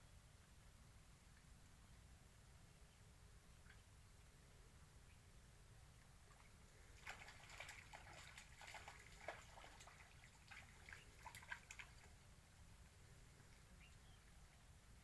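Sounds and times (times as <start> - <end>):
low hiss: 0.0 - 7.4
water dripping and trickling: 6.3 - 12.6.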